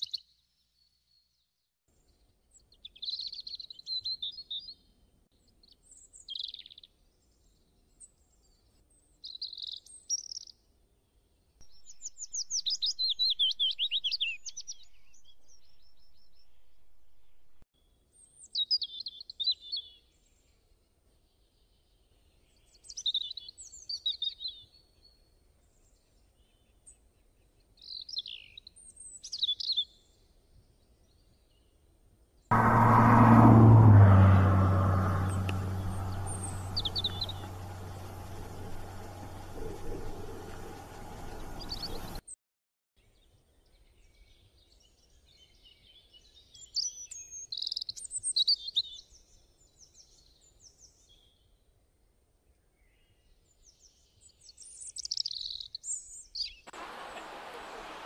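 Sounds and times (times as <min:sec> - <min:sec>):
small birds chirping: 0:05.4 - 0:10.6, 0:11.6 - 0:16.6, 0:35.2 - 0:42.2, 0:43.6 - 0:51.4, 0:53.5 - 0:56.7
faint low hum: 0:32.5 - 0:42.2.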